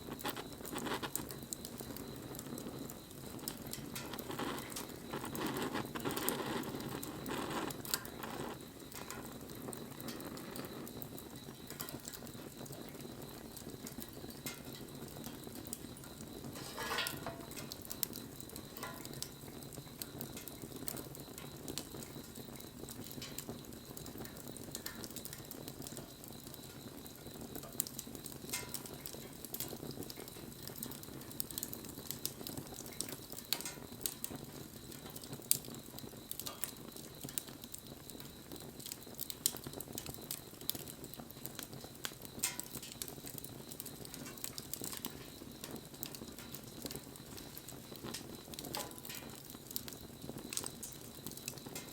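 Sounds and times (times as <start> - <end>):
low rush of flame: 0.0 - 28.3
wood crackling and popping: 0.0 - 51.9.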